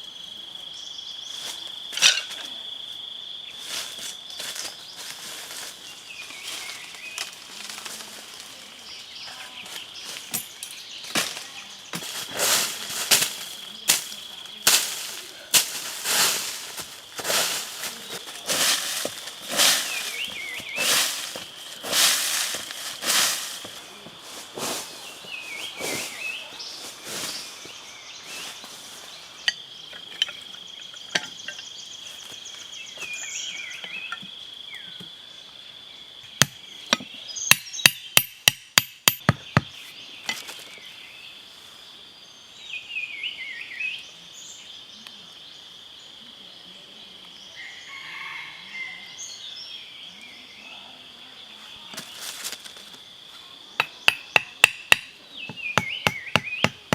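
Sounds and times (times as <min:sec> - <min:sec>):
high insect drone: 0:00.0 - 0:56.9
short insect chirps: 0:09.8 - 0:23.9.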